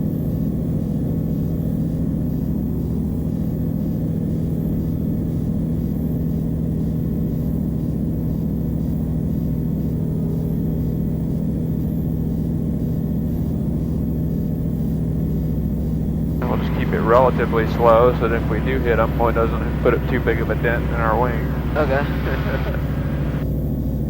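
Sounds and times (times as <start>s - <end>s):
aircraft engine and propeller drone: 16.4s - 24.0s.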